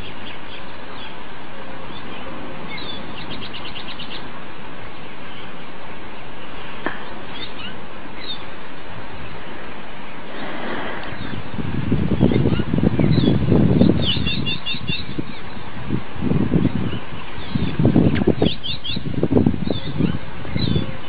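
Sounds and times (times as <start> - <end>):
birds chirping: 0.0 - 15.8, 16.4 - 21.0
background hiss: 0.0 - 21.0
bird trill: 1.9 - 4.3, 7.0 - 8.5, 12.2 - 15.6, 16.9 - 21.0.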